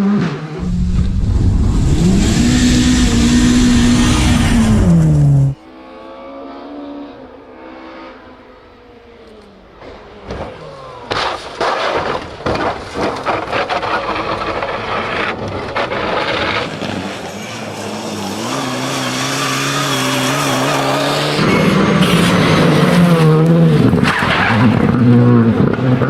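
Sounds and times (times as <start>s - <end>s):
rally car engine accelerating: 0.0s - 26.0s
sharp irregular bangs and cracks: 10.2s - 16.9s.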